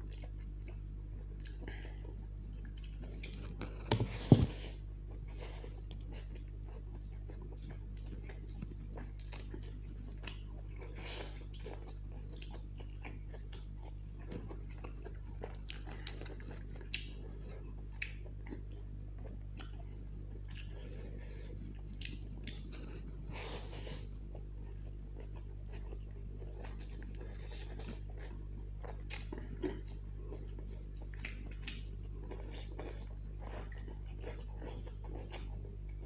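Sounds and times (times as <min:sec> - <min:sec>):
chewing and biting food: 0:00.0 - 0:36.0
steady low hum: 0:00.0 - 0:36.0.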